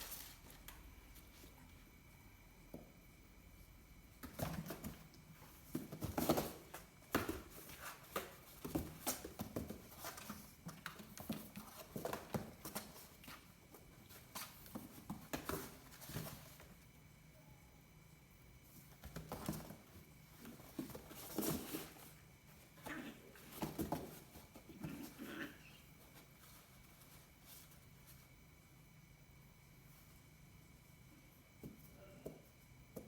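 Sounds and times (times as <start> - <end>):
kittens' paws pattering: 4.2 - 16.8, 18.6 - 28.4.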